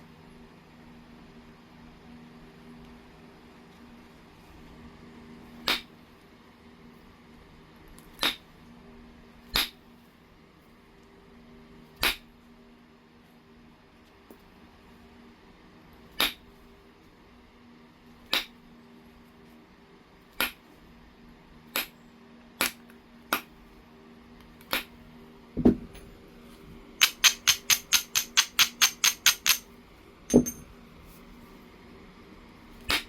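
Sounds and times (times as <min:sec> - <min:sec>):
knapping tool clicking on stone: 0:27.0 - 0:29.7, 0:30.3 - 0:30.6.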